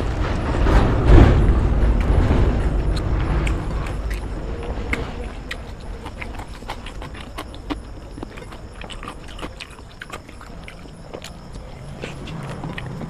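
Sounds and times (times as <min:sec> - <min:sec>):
chewing and lip-smacking: 0:02.9 - 0:13.0.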